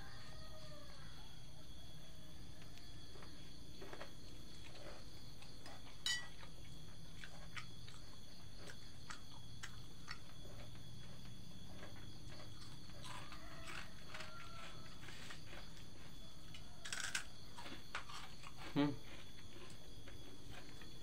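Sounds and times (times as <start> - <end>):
insects chirring: 0.0 - 21.0
low background hum: 0.0 - 21.0.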